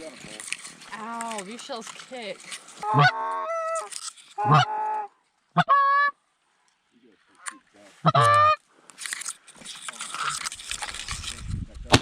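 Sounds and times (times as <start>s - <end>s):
goose honking: 2.8s - 6.2s, 8.0s - 8.6s.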